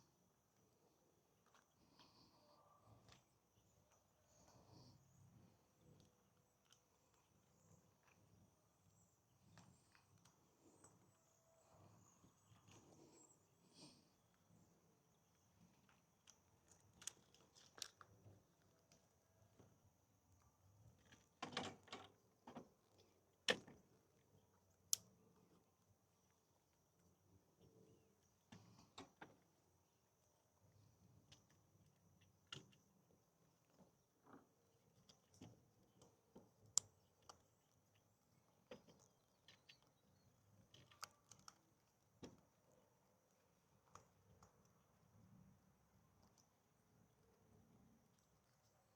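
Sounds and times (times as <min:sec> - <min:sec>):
faint clicks: 0:40.6 - 0:42.4.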